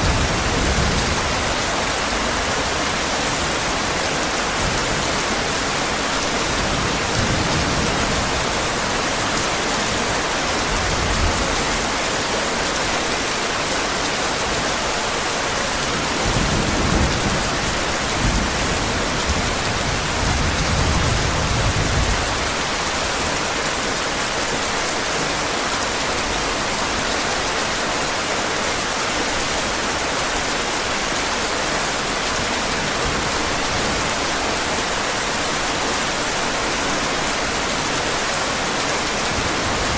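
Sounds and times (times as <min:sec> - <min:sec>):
thunder rumbling: 0:00.0 - 0:02.8
heavy rain falling: 0:00.0 - 0:39.9.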